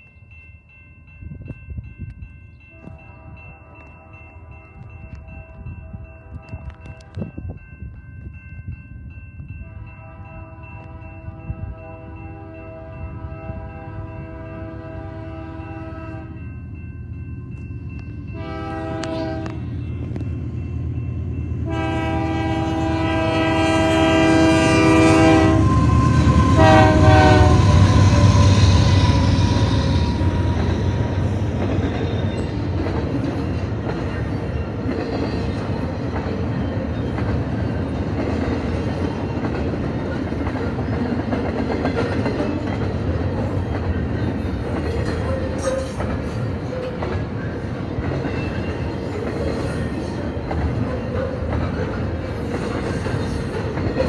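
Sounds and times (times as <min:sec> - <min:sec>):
train rumbling past: 0:00.7 - 0:54.0
train horn blasts: 0:02.7 - 0:07.2, 0:09.6 - 0:16.5, 0:18.3 - 0:19.7, 0:21.6 - 0:30.9.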